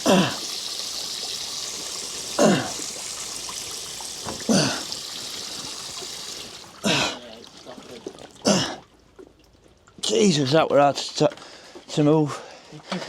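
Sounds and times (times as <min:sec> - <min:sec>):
water running from a tap: 0:00.0 - 0:08.9.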